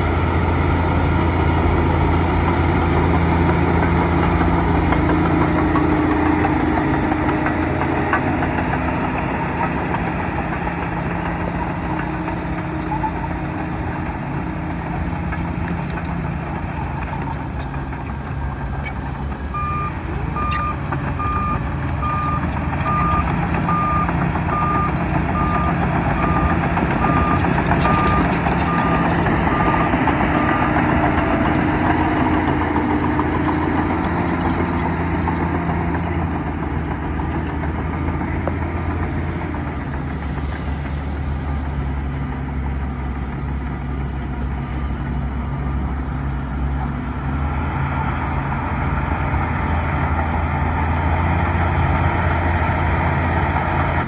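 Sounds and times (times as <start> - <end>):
bulldozer diesel engine running: 0.0 - 54.0
reversing alarm beeping: 19.6 - 31.0.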